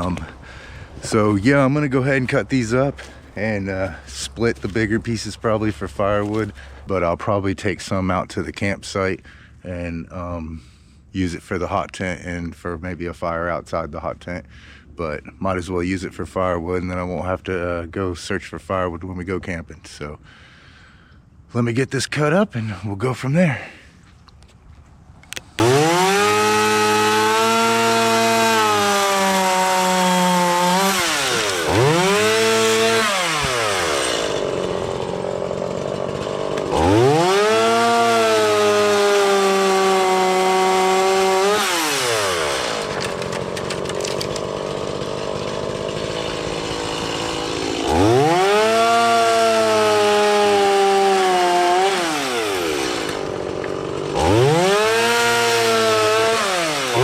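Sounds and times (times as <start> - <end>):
chainsaw cutting wood: 0.0 - 6.9, 25.4 - 57.0.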